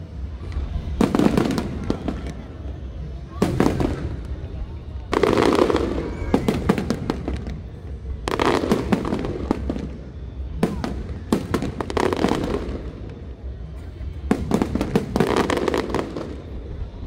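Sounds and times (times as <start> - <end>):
fireworks bangs: 0.0 - 17.0
fireworks crackling: 0.0 - 17.0.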